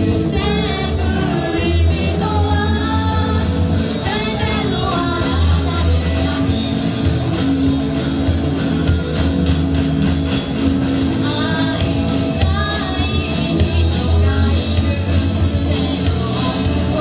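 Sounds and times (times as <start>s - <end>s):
person singing: 0.0s - 7.0s, 11.2s - 17.0s
bass line: 0.0s - 17.0s
drums: 0.0s - 17.0s
rock band playing: 0.0s - 17.0s.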